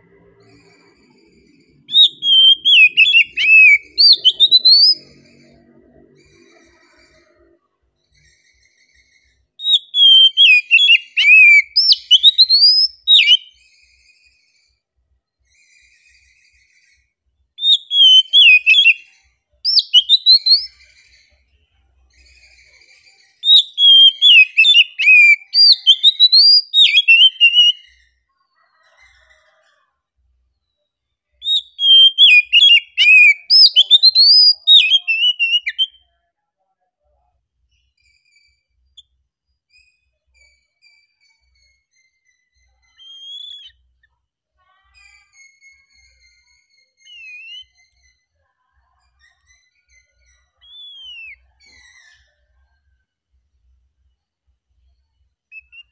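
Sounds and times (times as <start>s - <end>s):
bird singing whistles: 1.8s - 5.2s, 8.3s - 14.4s, 17.6s - 21.3s, 22.2s - 28.1s, 31.4s - 36.1s, 40.4s - 43.8s, 45.4s - 48.2s, 49.6s - 52.2s, 55.5s - 55.9s.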